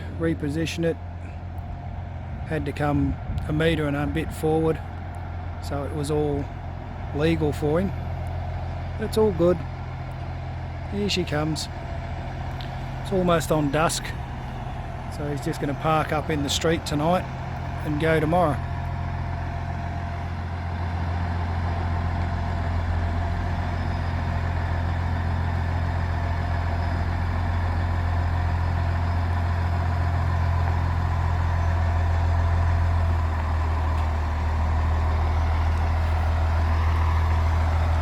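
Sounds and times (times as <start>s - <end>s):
vehicle engine running low: 0.0s - 38.0s.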